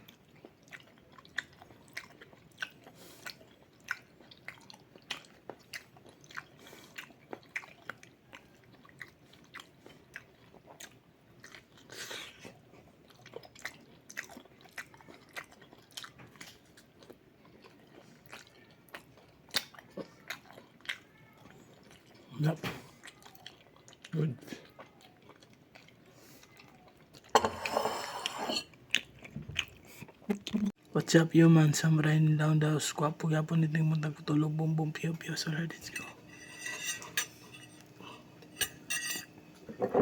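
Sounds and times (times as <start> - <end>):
person chewing food: 0.0 - 27.4, 28.2 - 30.9.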